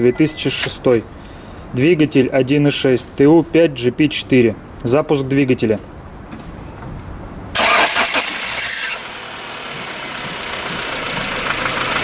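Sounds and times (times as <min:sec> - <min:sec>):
car engine starting and idling: 0:07.5 - 0:12.0.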